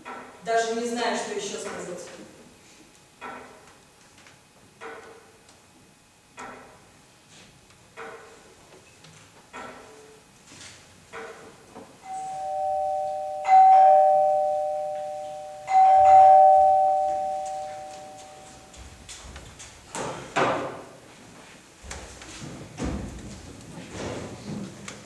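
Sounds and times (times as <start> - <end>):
two-tone doorbell chime: 12.0 - 18.8.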